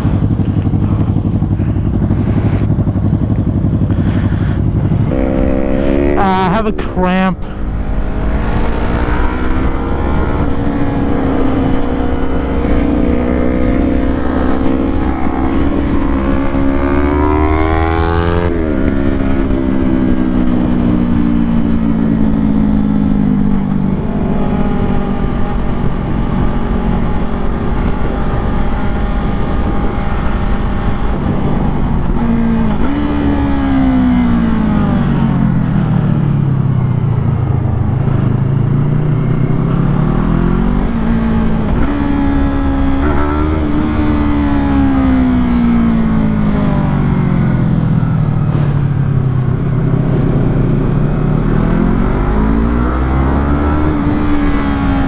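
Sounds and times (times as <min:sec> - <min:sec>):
motorcycle engine revving: 0:00.0 - 0:55.0
steady low rumble: 0:00.0 - 0:55.0.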